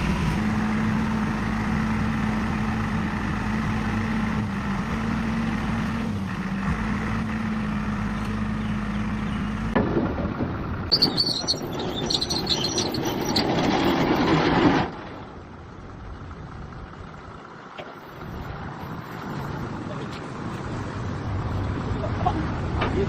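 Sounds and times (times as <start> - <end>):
vehicle engine idling: 0.0 - 12.6, 14.9 - 23.0
rough loud engine noise: 0.0 - 23.0
high chirps: 10.9 - 13.3.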